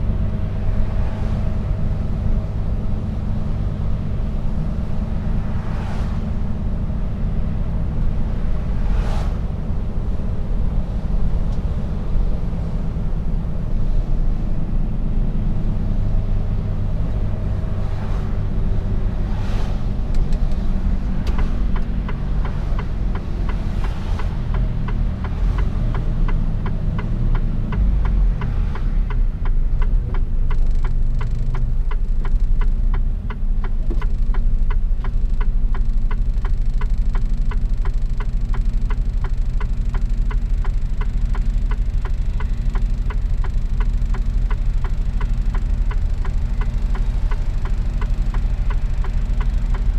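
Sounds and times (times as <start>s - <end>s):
truck diesel engine droning: 0.0s - 49.9s
quick regular ticking: 21.3s - 49.9s.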